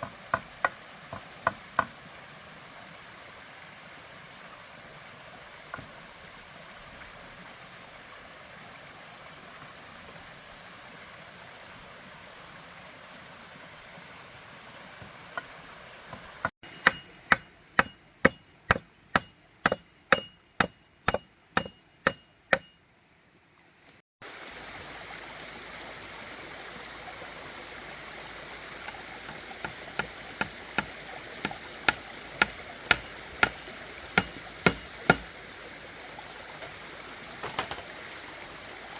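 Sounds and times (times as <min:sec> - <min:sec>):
steady hiss: 0:00.0 - 0:38.9
hand tool striking wood: 0:16.1 - 0:22.8, 0:28.8 - 0:35.3.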